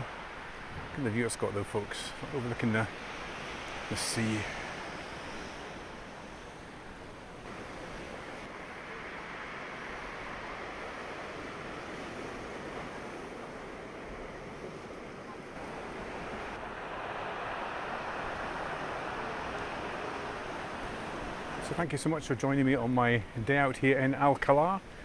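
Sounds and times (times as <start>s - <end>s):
heavy surf breaking: 0.0s - 25.0s
wind on microphone: 9.9s - 21.6s.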